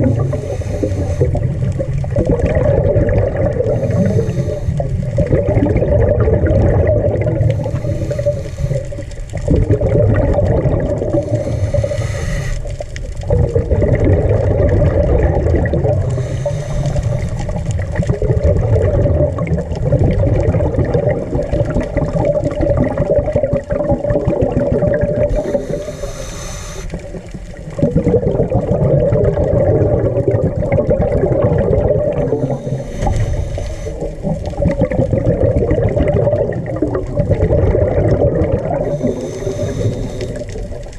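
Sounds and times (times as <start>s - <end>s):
regulator hiss: 0.0s - 1.5s, 3.8s - 5.1s, 7.5s - 9.0s, 11.2s - 12.8s, 16.1s - 17.4s, 25.3s - 27.3s, 32.3s - 34.4s, 38.8s - 40.8s
bubbling exhaled air underwater: 0.0s - 40.9s.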